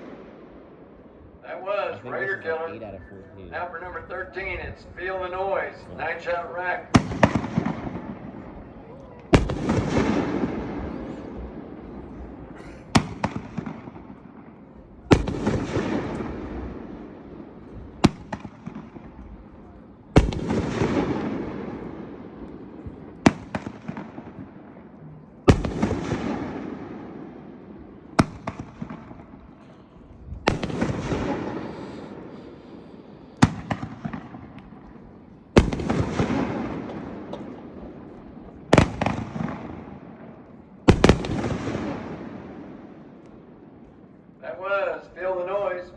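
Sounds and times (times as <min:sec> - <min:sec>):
firework booms with rumble: 0:03.9 - 0:43.8
firework sharp crack: 0:05.6 - 0:19.4, 0:20.2 - 0:29.6, 0:30.4 - 0:43.4.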